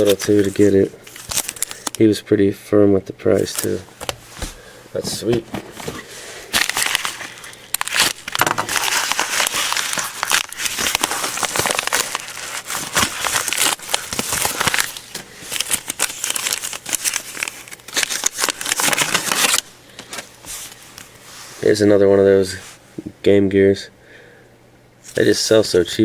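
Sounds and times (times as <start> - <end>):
packaging crinkling: 0.0 - 2.0, 3.3 - 21.2.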